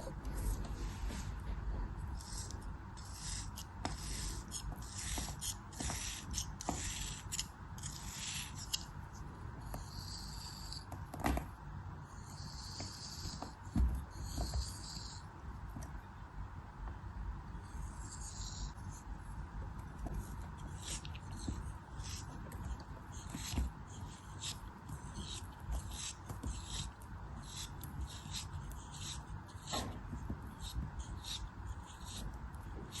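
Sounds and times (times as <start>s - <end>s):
blade cutting and scraping material: 2.2s - 8.9s, 20.2s - 33.0s.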